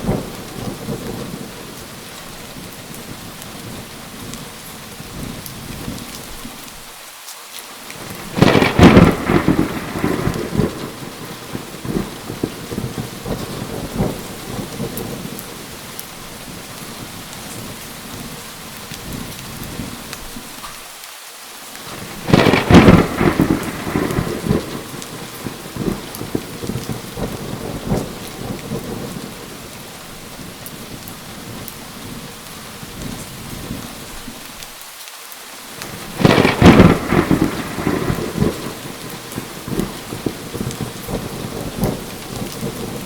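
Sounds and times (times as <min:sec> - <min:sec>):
thunder cracks and rumble: 0:00.0 - 0:01.7, 0:08.0 - 0:18.4, 0:21.9 - 0:34.1, 0:35.8 - 0:43.0
heavy rain: 0:00.0 - 0:43.0.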